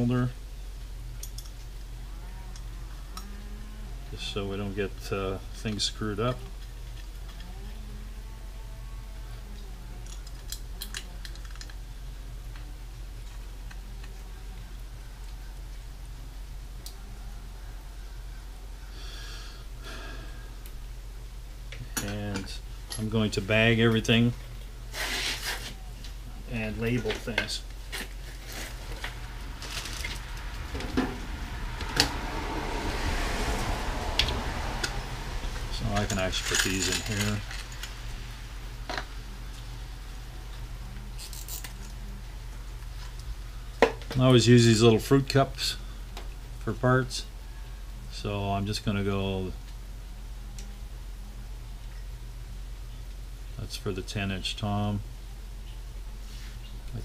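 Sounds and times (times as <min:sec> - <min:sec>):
steady low hum: 0:00.0 - 0:57.0
rustling handling noise: 0:22.1 - 0:31.2, 0:35.7 - 0:39.7.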